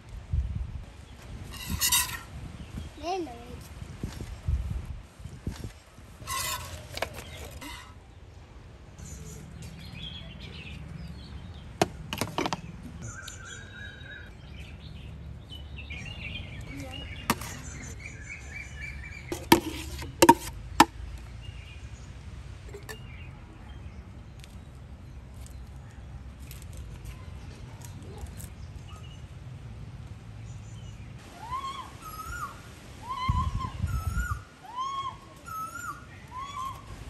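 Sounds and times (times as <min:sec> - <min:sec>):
birds chirping: 0:01.1 - 0:03.5, 0:06.2 - 0:26.2, 0:30.4 - 0:37.0.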